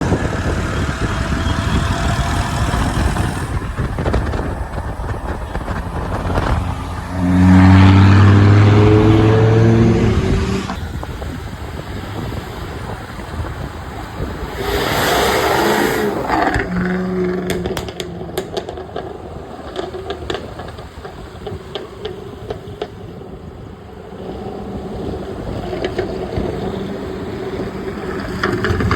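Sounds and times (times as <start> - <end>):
sports car engines accelerating: 0.0 - 28.9.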